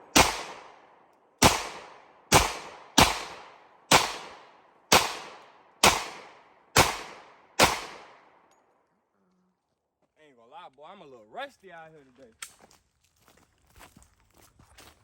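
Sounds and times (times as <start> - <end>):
pistol shots with echo: 0.0 - 8.4.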